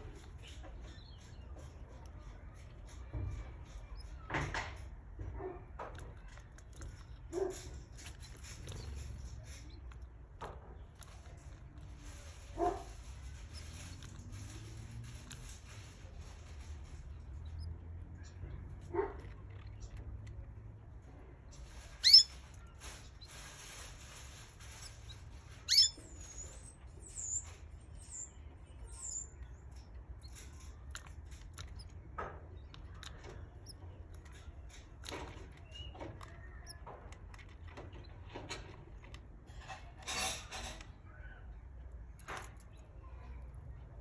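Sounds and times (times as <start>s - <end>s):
canaries chirping: 6.9s - 20.5s, 21.5s - 38.2s
rustling: 21.5s - 27.0s.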